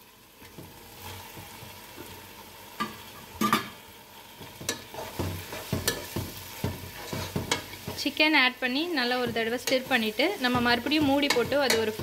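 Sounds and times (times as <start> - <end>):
chicken sizzling in hot oil: 0.0 - 12.0
scraping in a pot: 6.8 - 8.0.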